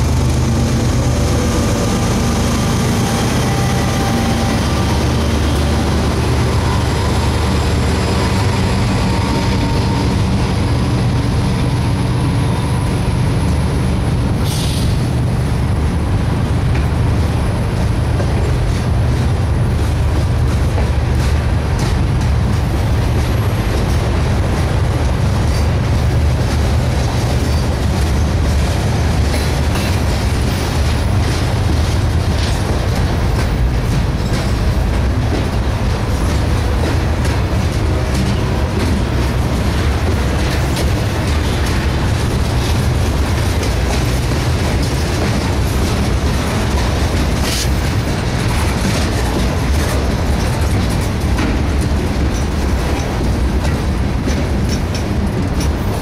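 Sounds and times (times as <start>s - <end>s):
freight train wheels rumbling: 0.0s - 56.0s
wheels clicking over rail joints: 15.8s - 56.0s.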